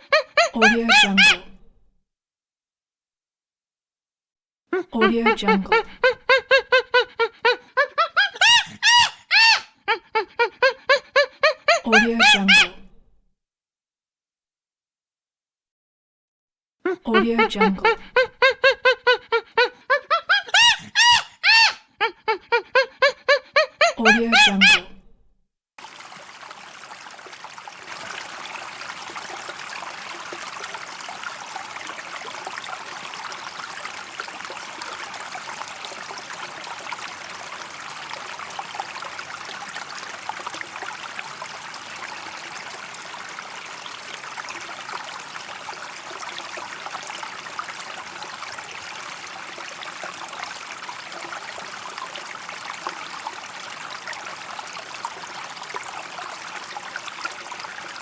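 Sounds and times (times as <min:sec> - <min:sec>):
stream water rushing: 0:25.8 - 0:58.0.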